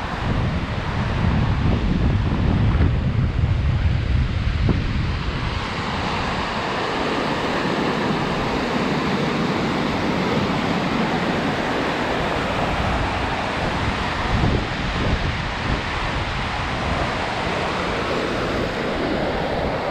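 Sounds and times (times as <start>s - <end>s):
wind noise on microphone: 0.0s - 19.9s.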